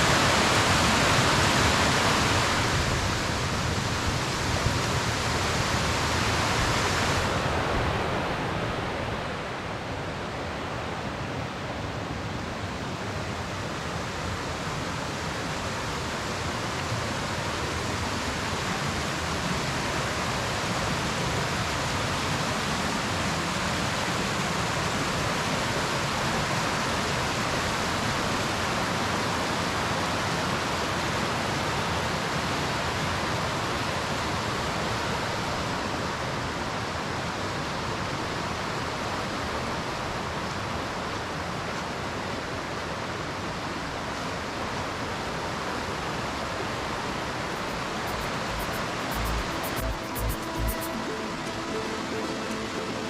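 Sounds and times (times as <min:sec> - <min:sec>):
waterfall rushing: 0:00.0 - 0:09.3, 0:47.5 - 0:53.0.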